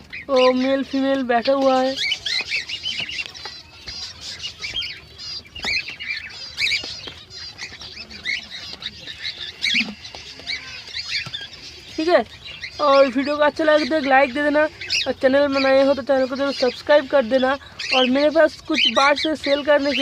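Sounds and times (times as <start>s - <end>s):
finches chirping: 0.0s - 20.0s.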